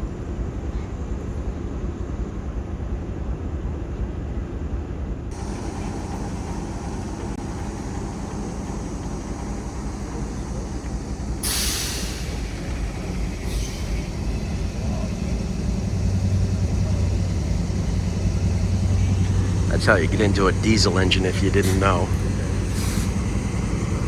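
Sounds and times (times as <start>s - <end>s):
diesel locomotive engine humming: 5.1s - 24.0s
compressed air hiss: 5.4s - 24.0s.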